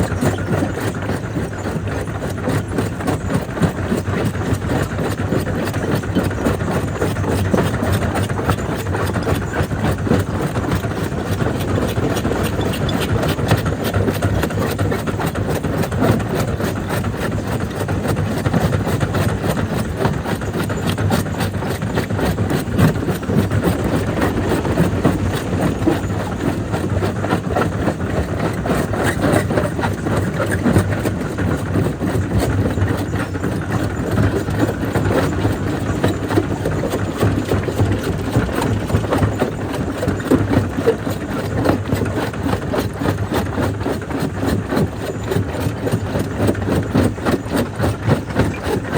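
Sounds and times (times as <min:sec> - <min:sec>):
crusher machine drone: 0:22.6 - 0:27.9.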